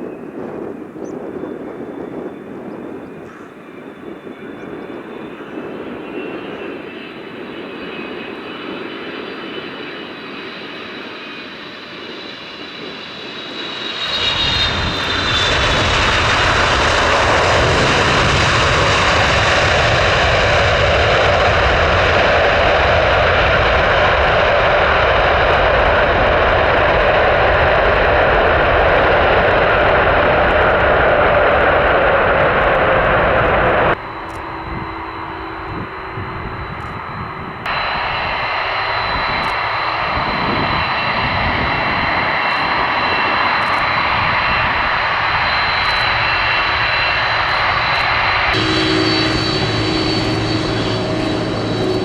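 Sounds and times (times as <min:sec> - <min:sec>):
jet engines whining: 0:00.0 - 0:52.0.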